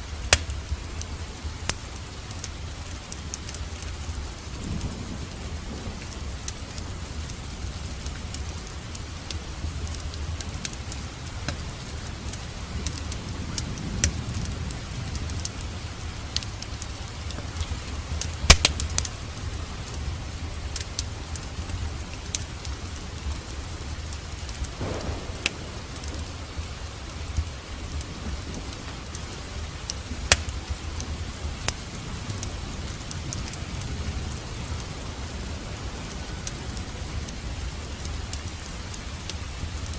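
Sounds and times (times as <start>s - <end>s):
steady rain: 0.0s - 39.9s
wood fire crackling: 0.0s - 39.9s
low rumble: 24.5s - 32.4s.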